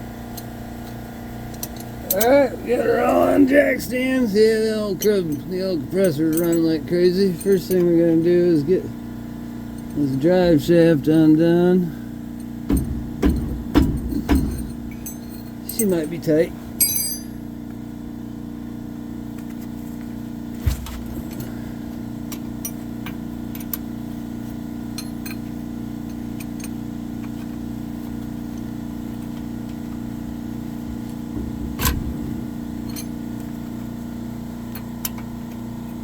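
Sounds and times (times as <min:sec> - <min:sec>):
hand tools clinking on metal: 0:01.6 - 0:02.4, 0:04.9 - 0:08.1, 0:14.0 - 0:17.4.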